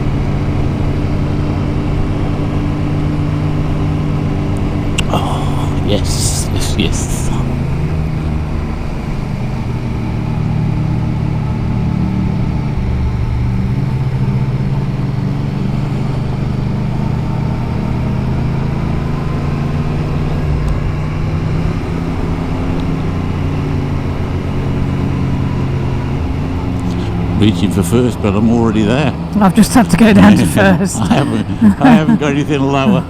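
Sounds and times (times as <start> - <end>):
motorcycle engine pulling uphill: 0.0 - 30.3.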